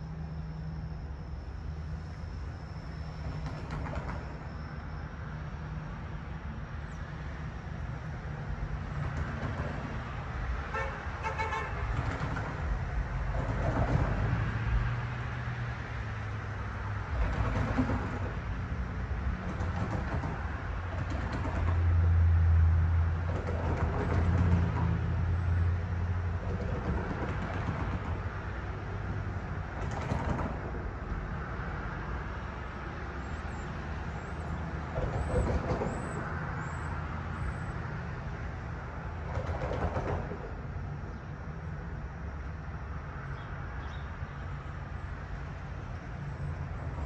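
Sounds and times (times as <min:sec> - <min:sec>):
rumble of trains and traffic: 0:00.0 - 0:47.0.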